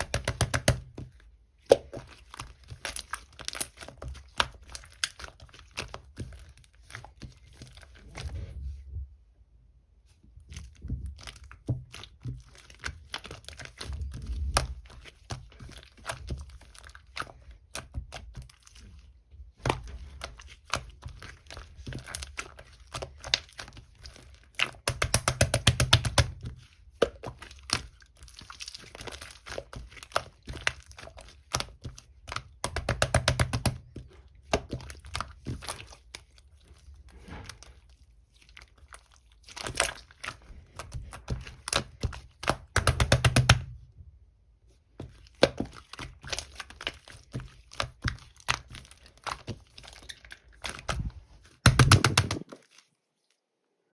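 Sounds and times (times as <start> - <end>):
slime clicking and popping: 24.7 - 26.4, 31.4 - 33.9, 39.6 - 43.7, 51.6 - 52.6.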